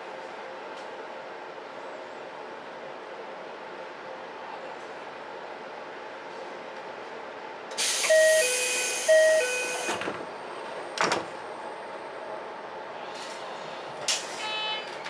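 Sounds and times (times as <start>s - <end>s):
train doors knocking shut: 11.0s - 11.4s.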